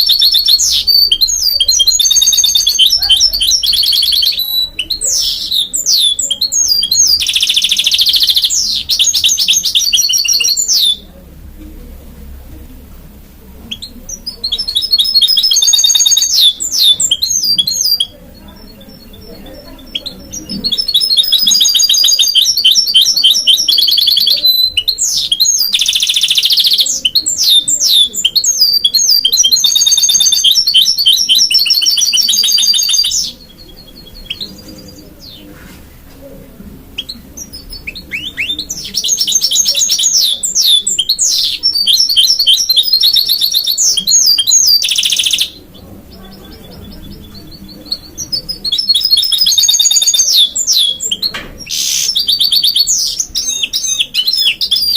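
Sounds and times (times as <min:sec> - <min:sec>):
bird twittering song with trills: 0:00.0 - 0:11.0, 0:13.7 - 0:35.5, 0:37.0 - 0:54.9
soft bird calls: 0:13.6 - 0:54.9.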